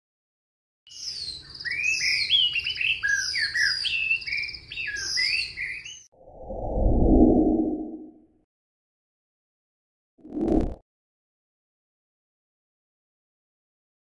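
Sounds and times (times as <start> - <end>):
bird song with chirps and trills: 0.9 - 6.1
low whoosh: 6.2 - 8.2.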